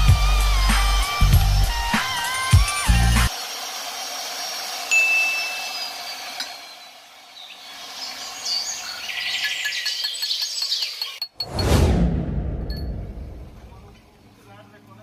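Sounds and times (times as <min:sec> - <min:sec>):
steel pipe ringing: 0:04.9 - 0:05.8.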